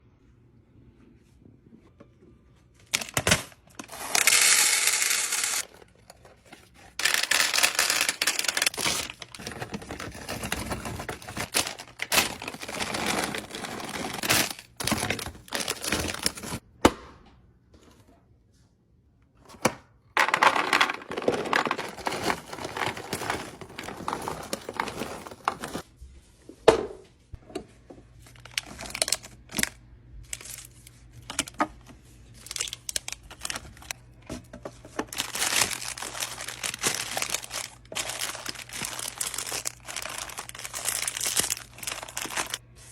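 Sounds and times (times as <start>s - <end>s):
plastic packaging crinkling: 2.9s - 16.6s, 20.2s - 25.8s, 28.2s - 31.7s, 32.3s - 34.0s, 34.9s - 42.6s.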